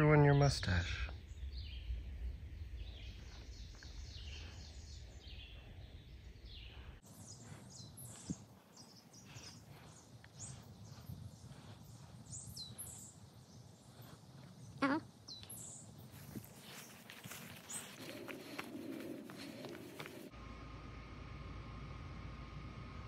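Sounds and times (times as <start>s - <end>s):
small birds chirping: 0.0s - 20.3s
low rumble: 0.9s - 7.6s.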